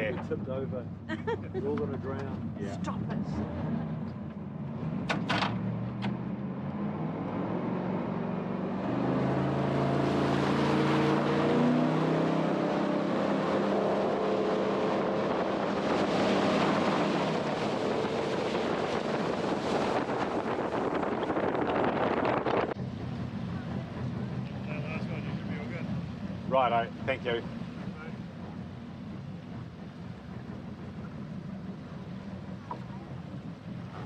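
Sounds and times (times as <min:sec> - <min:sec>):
jet boat engine: 0:00.0 - 0:34.0
wind noise on microphone: 0:15.8 - 0:22.8.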